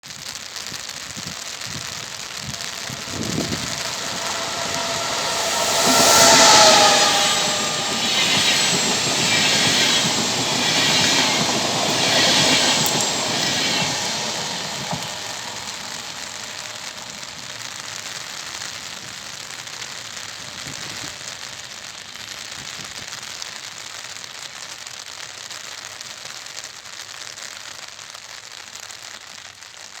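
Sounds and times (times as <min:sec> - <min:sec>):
heavy rain hissing: 0:00.0 - 0:18.6
faint locomotive whine: 0:01.4 - 0:18.8
train passing at speed: 0:01.4 - 0:18.8.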